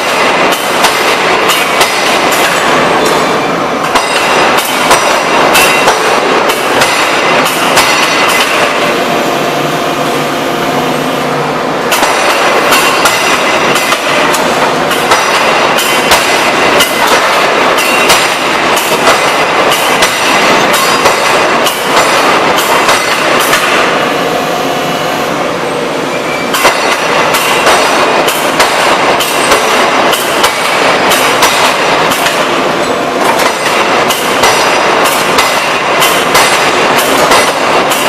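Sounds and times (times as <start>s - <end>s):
forging hammer striking steel: 0.0s - 9.5s, 11.8s - 24.4s, 26.3s - 38.0s
hydraulics and shop noise: 0.0s - 38.0s.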